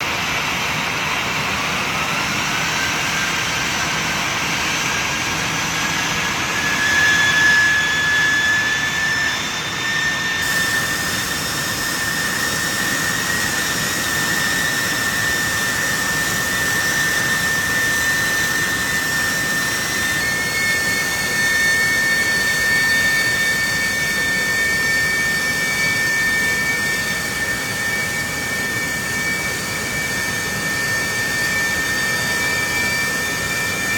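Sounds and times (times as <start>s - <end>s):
jet engine whine: 0.0s - 33.9s
jet noise rush: 7.0s - 21.1s.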